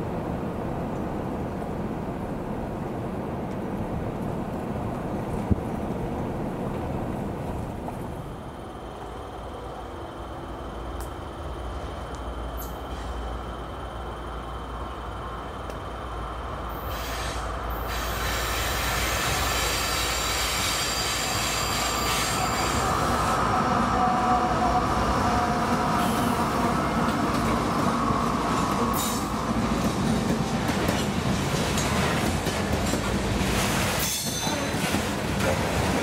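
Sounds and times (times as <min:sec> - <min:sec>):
diesel locomotive engines: 0:00.0 - 0:36.0
train track noise: 0:00.0 - 0:36.0.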